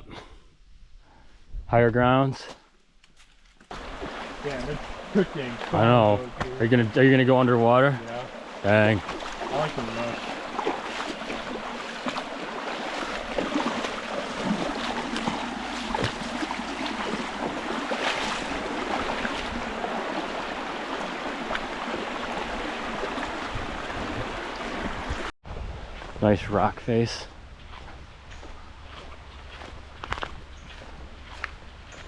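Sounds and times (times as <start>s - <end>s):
waterfall rushing: 3.7s - 6.6s.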